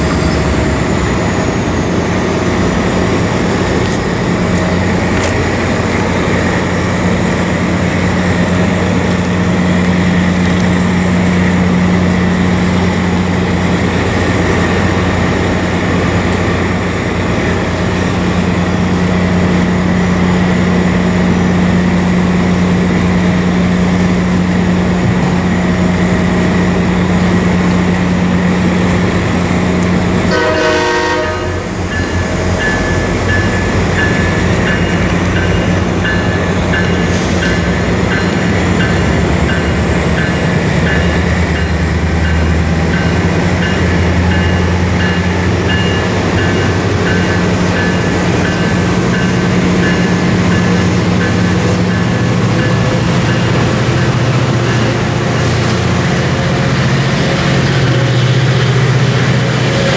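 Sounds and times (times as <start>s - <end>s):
diesel train rumble: 0.0s - 59.9s.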